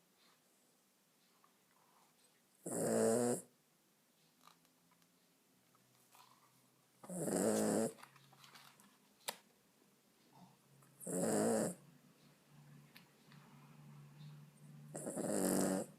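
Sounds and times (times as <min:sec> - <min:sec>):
dog snoring: 0:02.6 - 0:03.5, 0:07.1 - 0:08.0, 0:11.0 - 0:11.8, 0:14.9 - 0:15.9.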